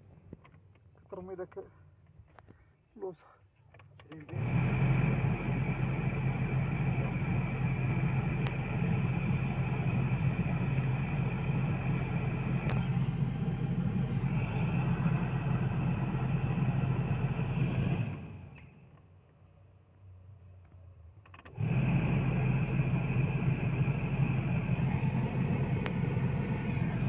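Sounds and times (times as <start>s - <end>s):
blower fan motor whining: 4.2s - 19.0s, 21.4s - 27.0s.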